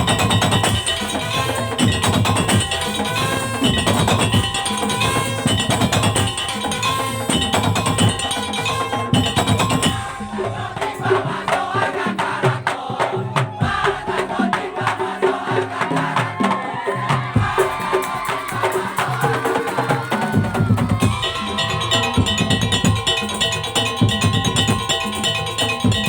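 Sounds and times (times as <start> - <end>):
wooden slit drums beating: 0.0 - 26.0
pitched melody: 20.6 - 26.0.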